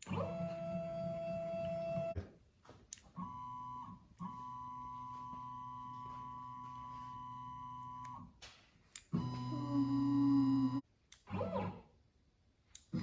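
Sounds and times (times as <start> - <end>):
stepper motors whining: 9.1 - 11.8.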